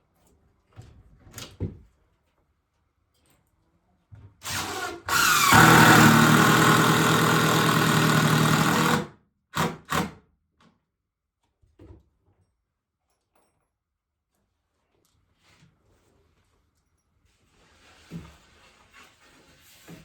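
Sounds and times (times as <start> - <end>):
electric drill in wood: 4.4 - 10.2.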